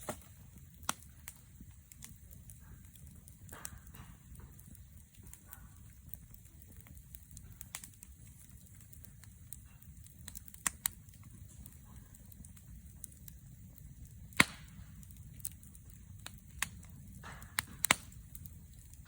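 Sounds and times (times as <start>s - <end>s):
faint low rumble: 0.0s - 19.0s
wood fire crackling: 0.0s - 19.0s.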